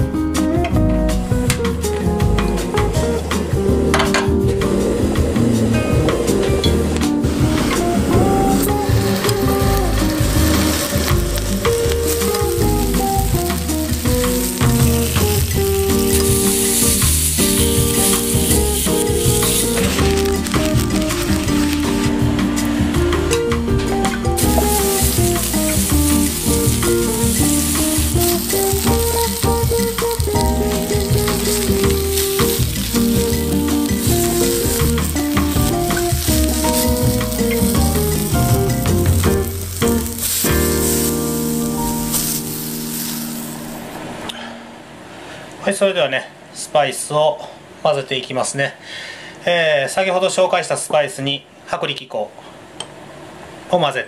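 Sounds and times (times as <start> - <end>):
background music: 0.0 - 44.8
tomatoes sizzling in oil: 1.2 - 44.3.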